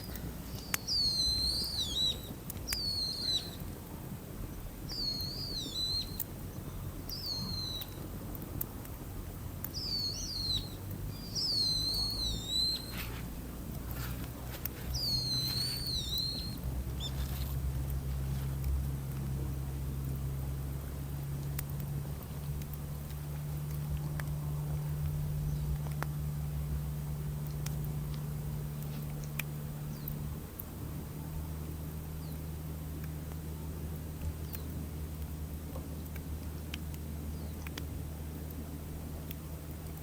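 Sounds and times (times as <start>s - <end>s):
bird whistled call: 0.0s - 3.6s, 4.9s - 6.2s, 7.1s - 8.0s, 9.8s - 13.2s, 14.9s - 17.3s
low steady hum: 0.0s - 40.0s.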